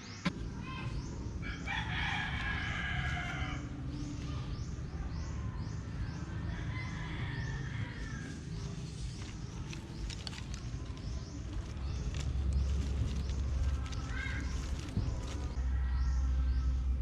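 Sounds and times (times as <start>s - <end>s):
steady low rumble: 0.2s - 17.0s
rooster crowing: 1.4s - 3.7s, 6.5s - 8.4s.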